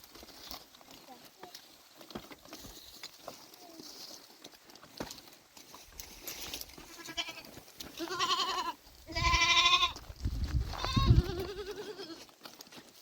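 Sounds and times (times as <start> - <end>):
goats bleating: 6.7 - 12.3.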